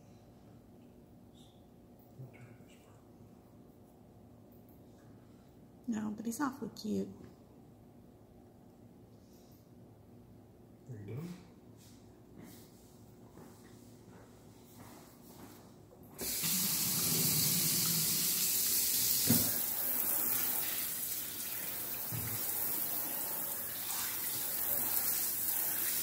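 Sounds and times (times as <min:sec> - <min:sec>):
kitchen tap turned on: 0:16.2 - 0:20.6, 0:21.9 - 0:22.6
water running into sink: 0:16.2 - 0:26.0.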